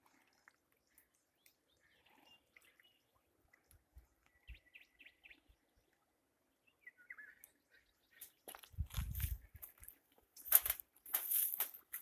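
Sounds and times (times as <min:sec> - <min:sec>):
faint bird chirps: 0:00.1 - 0:08.6.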